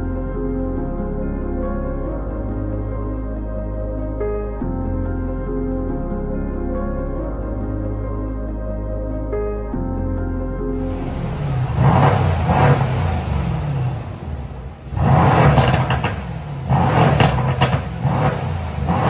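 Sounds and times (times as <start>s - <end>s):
car engine revving: 10.8s - 19.0s.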